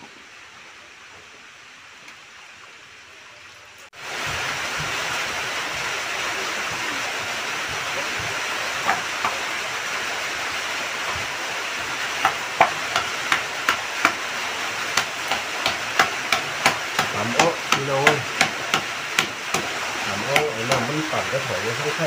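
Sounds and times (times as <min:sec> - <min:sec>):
heavy rain hiss: 0:00.0 - 0:22.0
wooden pestle pounding in bowl: 0:15.0 - 0:21.1.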